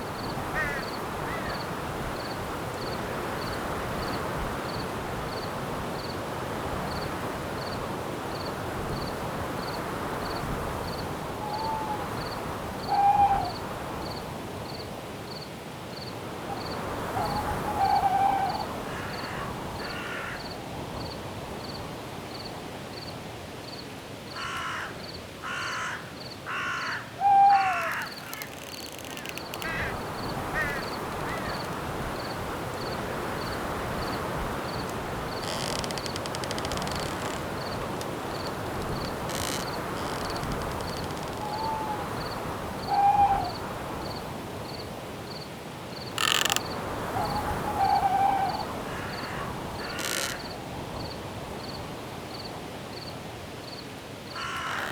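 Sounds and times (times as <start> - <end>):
crow-like caws: 0.5 - 1.6, 17.3 - 20.6, 24.4 - 31.7, 35.4 - 37.4, 39.2 - 43.6, 46.2 - 46.7, 47.6 - 50.5, 54.4 - 54.9
insect chirping: 25.0 - 53.1, 53.7 - 54.9
birds calling: 25.5 - 43.6, 46.2 - 50.5, 54.4 - 54.9.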